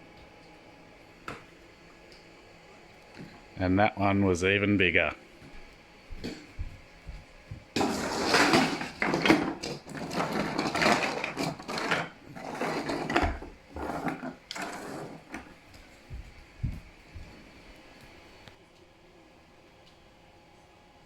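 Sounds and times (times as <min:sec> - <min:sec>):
plastic clattering and rattling: 0:07.8 - 0:15.5.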